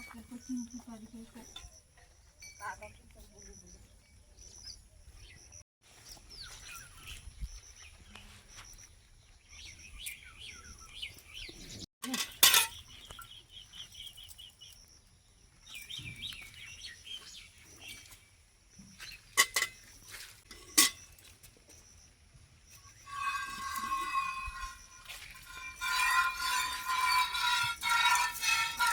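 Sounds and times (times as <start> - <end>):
small birds chirping: 0.0 - 11.9, 12.7 - 20.4.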